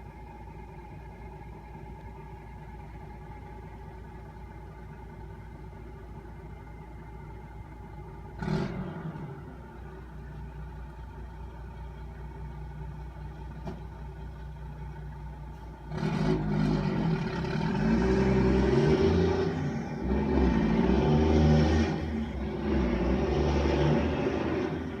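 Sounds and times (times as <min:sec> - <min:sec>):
garbage truck engine revving: 0:15.9 - 0:25.0.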